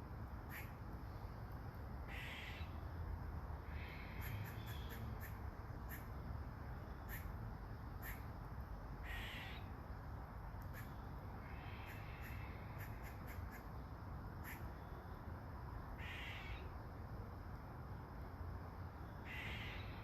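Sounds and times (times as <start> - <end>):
crow cawing: 2.1 - 2.7, 3.7 - 6.0, 9.0 - 9.6, 11.5 - 13.6, 16.0 - 16.6, 19.3 - 19.9.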